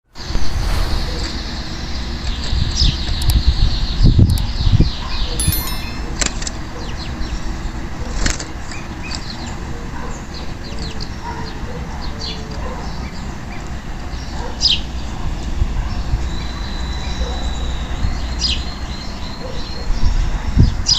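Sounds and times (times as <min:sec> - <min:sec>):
steady low rumble: 0:00.2 - 0:02.4.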